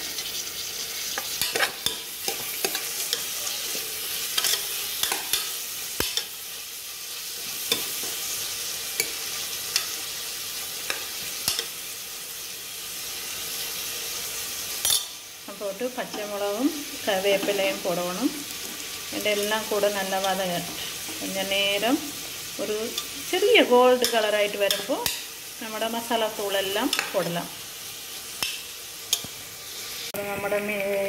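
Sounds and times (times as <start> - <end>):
onions sizzling in oil: 0.0 - 31.0.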